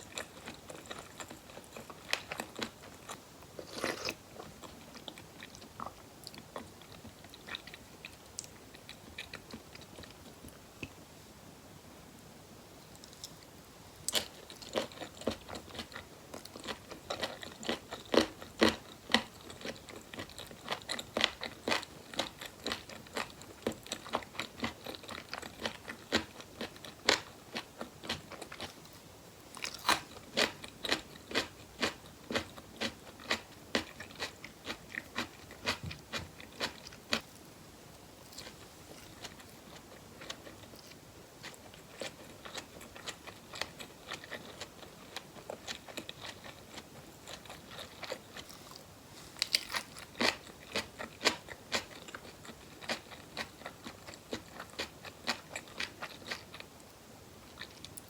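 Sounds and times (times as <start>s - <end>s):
chewing and biting: 41.4s - 48.8s.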